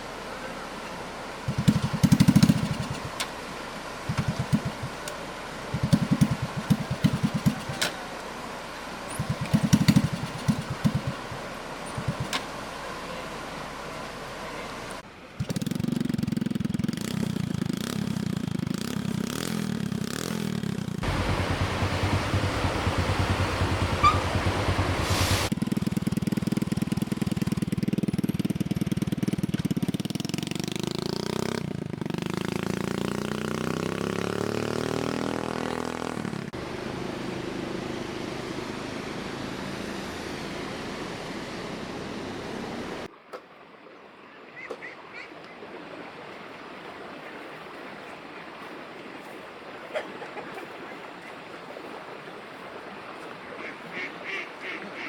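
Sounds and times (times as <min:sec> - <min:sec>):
vehicle engine running loudly: 0:01.3 - 0:08.0, 0:08.8 - 0:13.2, 0:14.0 - 0:43.1.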